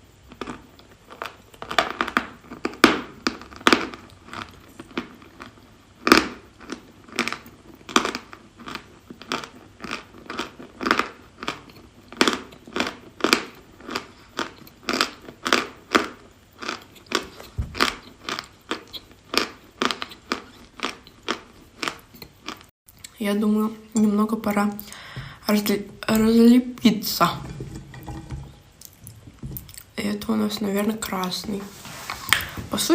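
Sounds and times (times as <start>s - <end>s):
chewing and crunching chalk: 0.2s - 23.2s.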